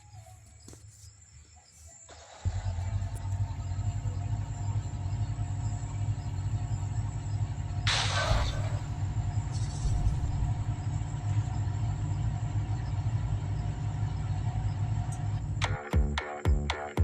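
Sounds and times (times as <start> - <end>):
tractor engine droning: 2.1 - 15.9
loud hiss: 7.9 - 11.2.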